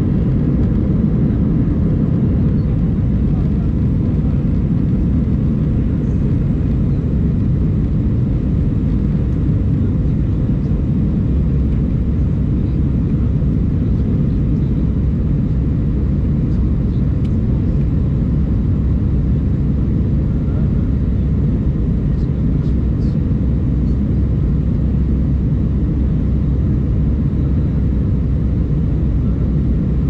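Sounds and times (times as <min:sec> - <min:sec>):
jet cabin engine drone: 0:00.0 - 0:30.0.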